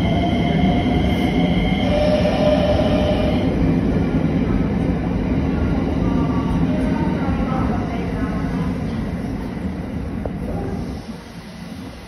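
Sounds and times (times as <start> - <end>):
whining train tones: 0.0 - 4.9
train wheels rumbling on rails: 0.0 - 12.0.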